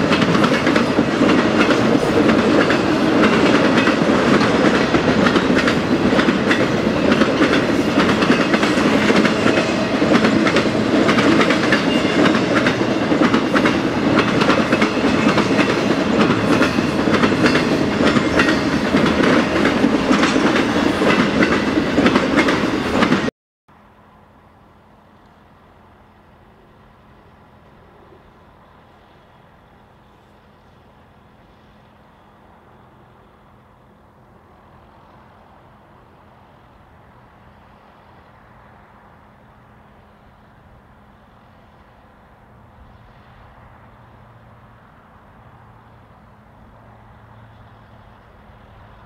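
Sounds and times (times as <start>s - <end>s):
clickety-clack over rail joints: 0.0s - 23.3s
freight train cars rolling past: 0.0s - 49.0s.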